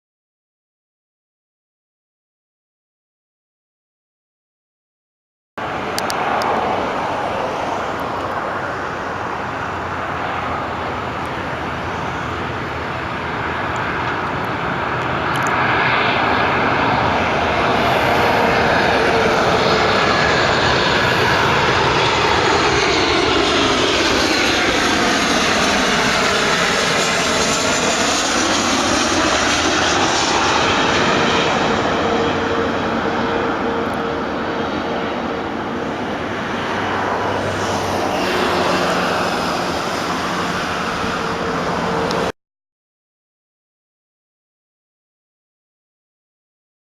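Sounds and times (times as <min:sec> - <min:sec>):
jet engines whining: 0:05.6 - 0:42.3
jet passing swoosh: 0:05.6 - 0:42.3.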